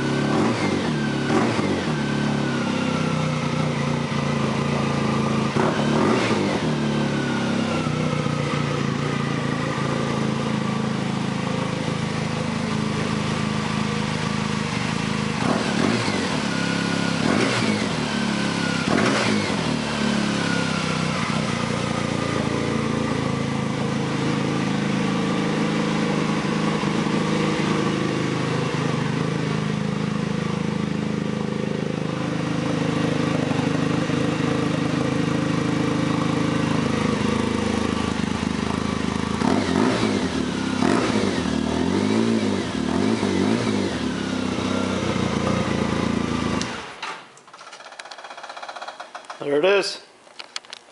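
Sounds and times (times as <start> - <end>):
engine revving: 0.0 - 47.0
snowmobile engine idling: 7.9 - 15.4, 19.7 - 39.4.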